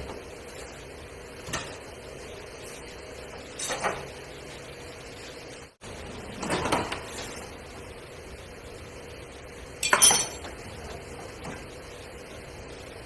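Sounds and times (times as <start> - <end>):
metal objects clanking: 9.8 - 10.5.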